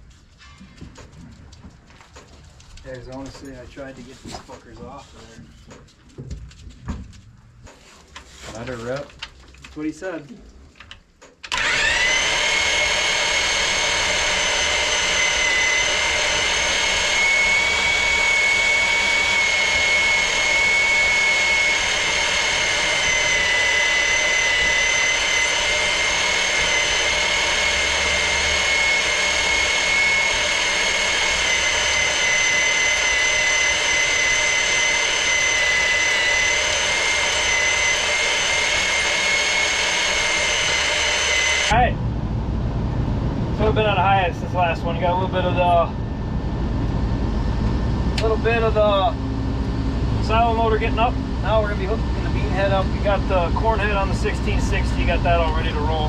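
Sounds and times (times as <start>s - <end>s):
machine running with high whine: 11.5s - 56.0s.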